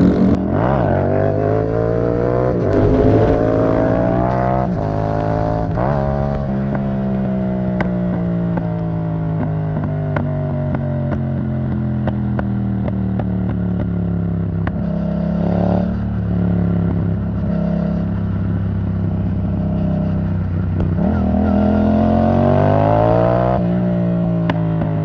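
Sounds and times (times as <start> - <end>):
motorcycle engine revving: 0.0 - 18.6.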